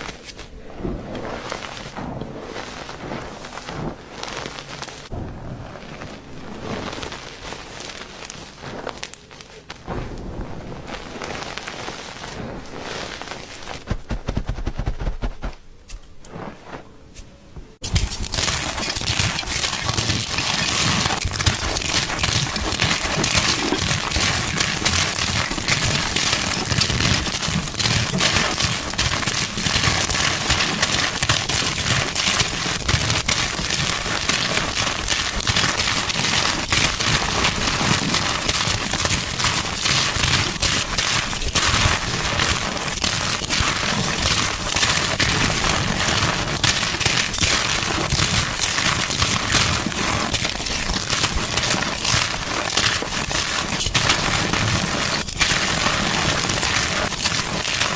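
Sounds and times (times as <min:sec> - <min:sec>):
chalk being crushed: 0:17.2 - 0:57.9.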